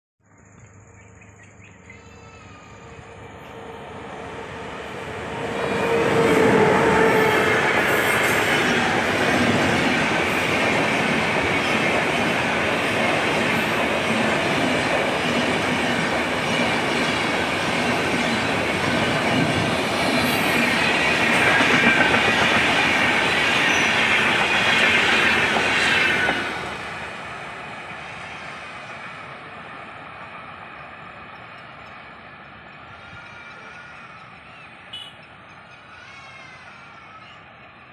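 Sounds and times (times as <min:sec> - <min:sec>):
train coaches rolling past: 0:01.5 - 0:37.9
wheels clattering on rails: 0:05.3 - 0:26.5.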